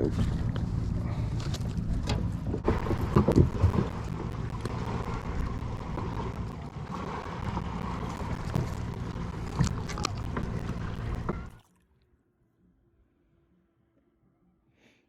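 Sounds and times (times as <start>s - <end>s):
wind rumbling on microphone: 0.0s - 11.6s.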